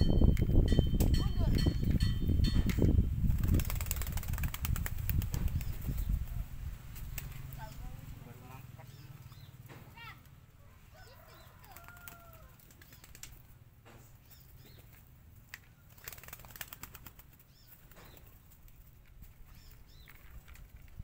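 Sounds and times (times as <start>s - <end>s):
pigeon wings flapping: 3.2s - 6.0s, 6.9s - 7.6s, 11.6s - 13.6s, 14.9s - 19.3s.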